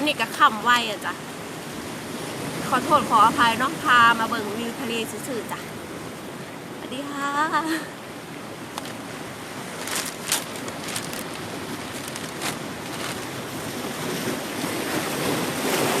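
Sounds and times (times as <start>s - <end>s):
sea surf breaking on shore: 7.6s - 16.0s.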